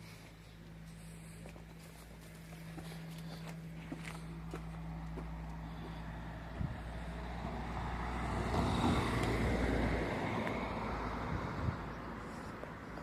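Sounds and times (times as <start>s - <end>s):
car engine driving past: 4.4s - 13.0s.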